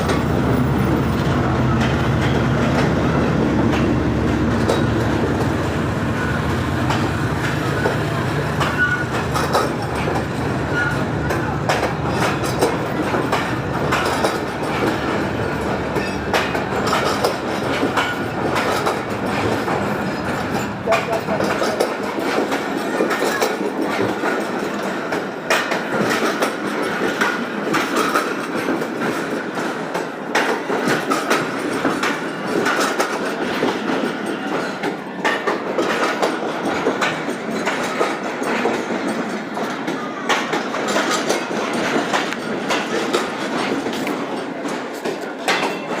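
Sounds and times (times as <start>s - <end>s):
train rumbling along track: 0.0s - 46.0s.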